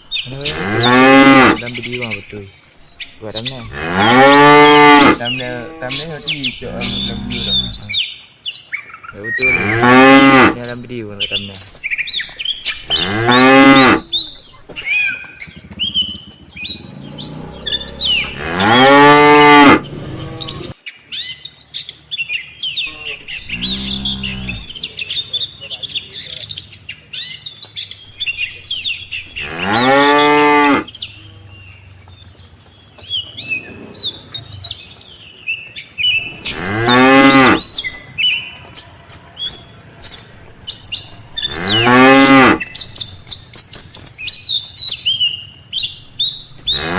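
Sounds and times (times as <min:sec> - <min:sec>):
small birds chirping: 0:00.0 - 0:46.9
cattle mooing: 0:00.2 - 0:02.4, 0:03.1 - 0:08.0, 0:09.2 - 0:10.6, 0:12.6 - 0:14.5, 0:16.8 - 0:20.8, 0:22.9 - 0:24.8, 0:28.2 - 0:30.9, 0:36.3 - 0:38.0, 0:40.3 - 0:43.3, 0:46.0 - 0:46.9.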